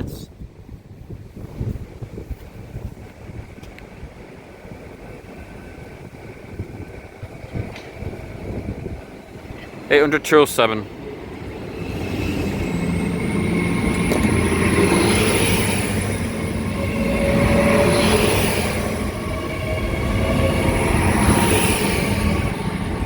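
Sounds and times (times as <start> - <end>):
train passing rumble: 0.2 - 23.0
high-pitched whine: 11.4 - 23.0.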